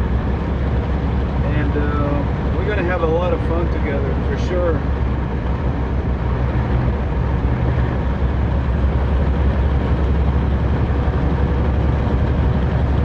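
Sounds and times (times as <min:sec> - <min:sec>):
road noise: 0:00.0 - 0:13.0
truck diesel engine drone: 0:00.0 - 0:13.0.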